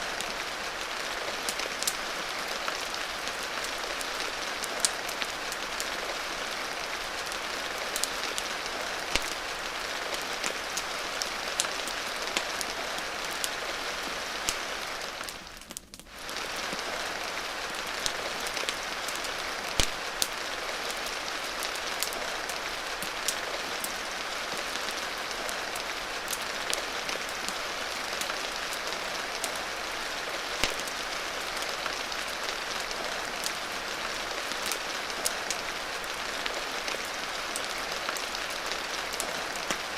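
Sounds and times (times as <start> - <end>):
steady rain: 0.0 - 39.9
wood fire pops and crackles: 9.0 - 13.6, 14.4 - 20.4, 30.6 - 33.6.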